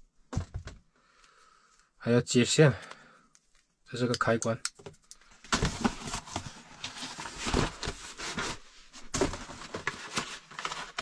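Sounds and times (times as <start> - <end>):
rustling and crackling packaging: 5.0 - 11.0.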